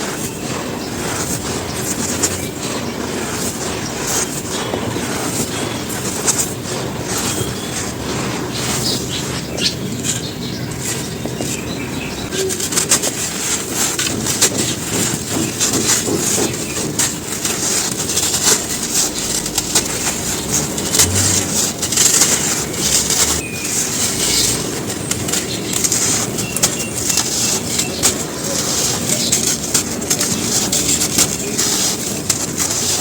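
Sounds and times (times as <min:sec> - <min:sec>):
charcoal crumbling and crunching: 0:10.0 - 0:33.0.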